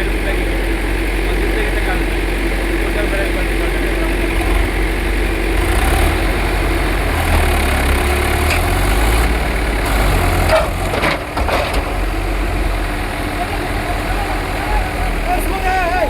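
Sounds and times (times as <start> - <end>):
tractor engine rumbling: 0.0 - 16.0
short knocks or rattles: 10.4 - 12.1.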